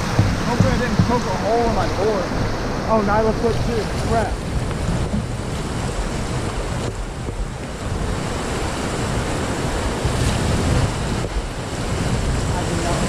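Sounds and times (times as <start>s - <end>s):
whitewater rushing through rapids: 0.0s - 13.0s
wind buffeting microphone: 0.0s - 13.0s.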